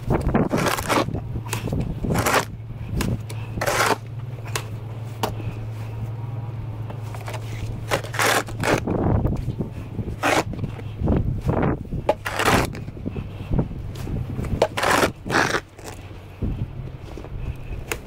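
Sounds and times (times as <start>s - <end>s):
steady low hum: 0.0s - 18.0s
snow shovel scraping pavement: 0.4s - 4.6s, 7.0s - 9.0s, 9.9s - 13.0s, 13.9s - 16.1s.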